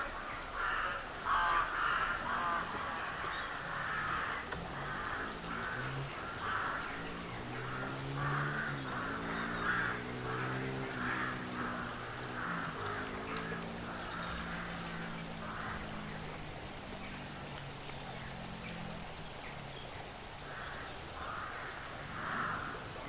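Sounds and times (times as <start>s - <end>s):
crows cawing: 0.6s - 16.3s, 20.4s - 23.0s.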